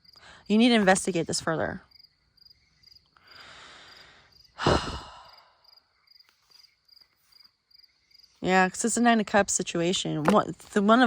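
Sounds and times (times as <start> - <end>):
crickets chirping: 0.0 - 10.9
person breathing in: 3.2 - 5.6
person sighing heavily: 3.3 - 5.6.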